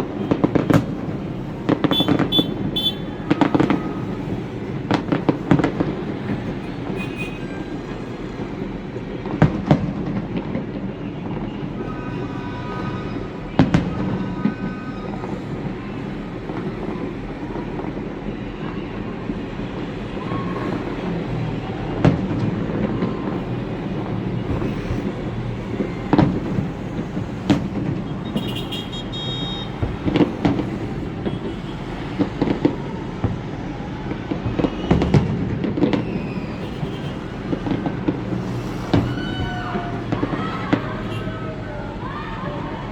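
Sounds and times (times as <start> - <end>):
sharp firework bangs: 0.0 - 7.3, 22.0 - 41.4
rumble of firework bursts: 12.8 - 41.6.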